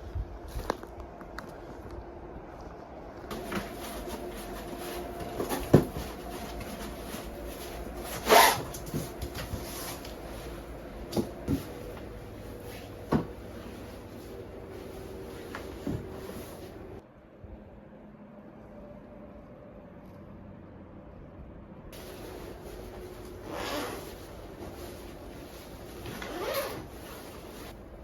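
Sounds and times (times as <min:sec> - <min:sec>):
low background hum: 0:00.0 - 0:28.0
objects knocking and clunking: 0:03.3 - 0:07.3.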